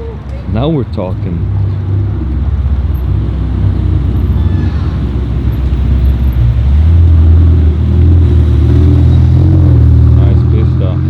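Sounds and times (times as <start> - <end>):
car engine passing at low speed: 0.6 - 11.0.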